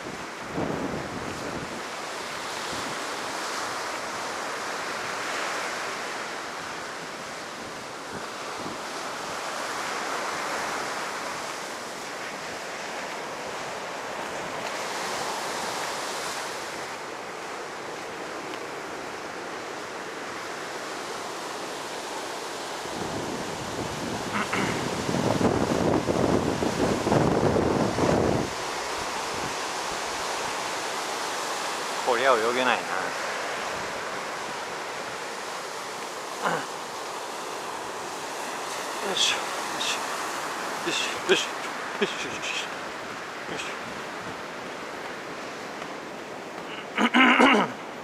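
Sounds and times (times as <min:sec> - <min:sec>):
ocean surf breaking on beach: 0:00.0 - 0:48.0.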